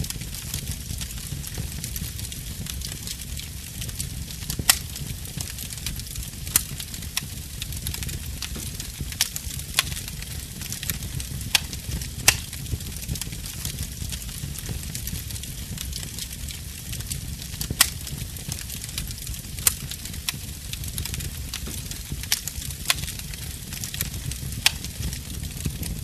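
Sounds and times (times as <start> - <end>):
sharp pops of fire: 0.0 - 26.0
wood fire crackling: 0.0 - 26.0.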